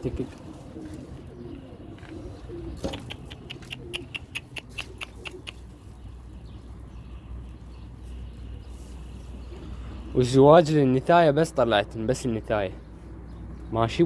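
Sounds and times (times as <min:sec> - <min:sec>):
pigeon cooing: 0:00.0 - 0:07.1.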